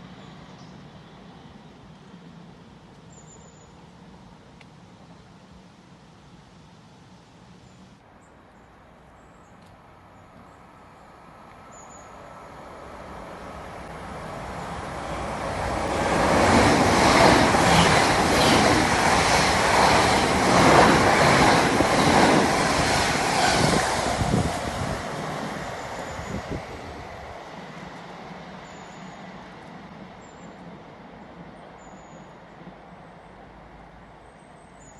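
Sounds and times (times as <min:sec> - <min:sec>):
train passing: 0:09.8 - 0:34.9
train wheels clattering on rails: 0:15.4 - 0:24.6.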